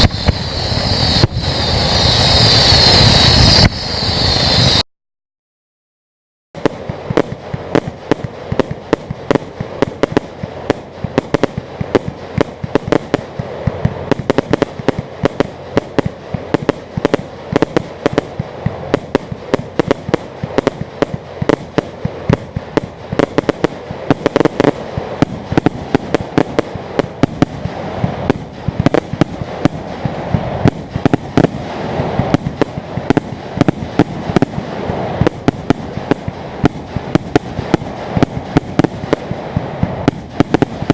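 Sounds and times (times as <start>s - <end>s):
fireworks bangs and crackles: 0.0s - 4.8s, 6.6s - 40.9s
steady noisy rumble: 0.0s - 4.8s, 6.6s - 40.9s.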